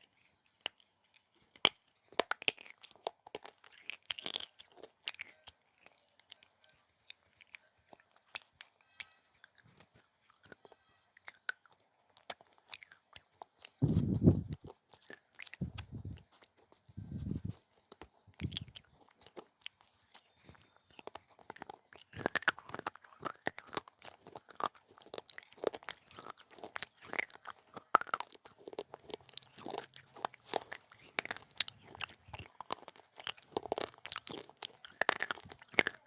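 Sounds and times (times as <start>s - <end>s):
crunching and chewing clay: 0.0s - 36.0s
loud dull low thuds: 13.8s - 14.6s.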